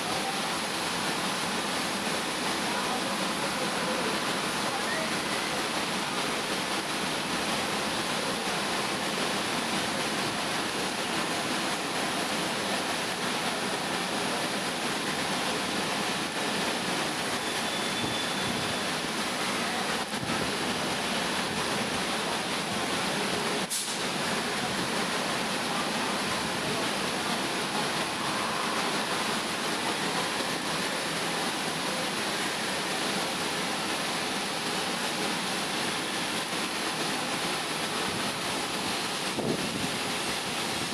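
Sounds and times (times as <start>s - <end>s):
high-pressure water jet hissing: 0.0s - 40.9s.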